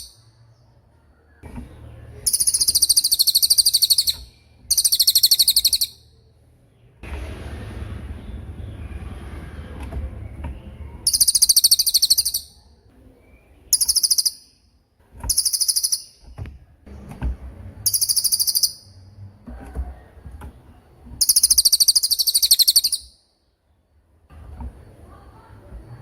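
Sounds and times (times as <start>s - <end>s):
bird trilling: 2.2s - 6.2s, 11.0s - 12.6s, 13.7s - 14.7s, 15.3s - 16.3s, 17.8s - 19.0s, 21.2s - 23.3s.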